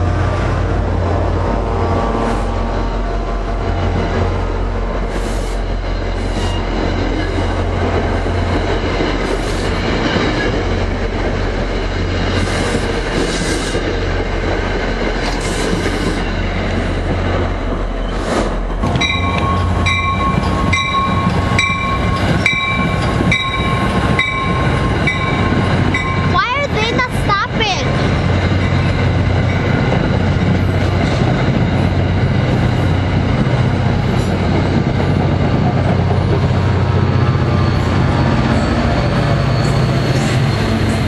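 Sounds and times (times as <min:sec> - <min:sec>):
commuter train passing: 0:00.0 - 0:41.0.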